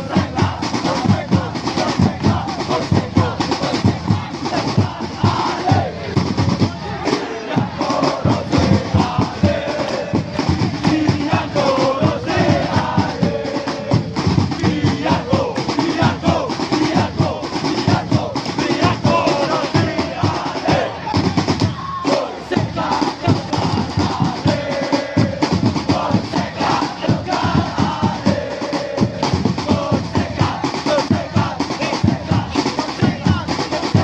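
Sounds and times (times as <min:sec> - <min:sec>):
crowd chanting in unison: 0:00.0 - 0:34.0
drums beating: 0:00.0 - 0:34.0.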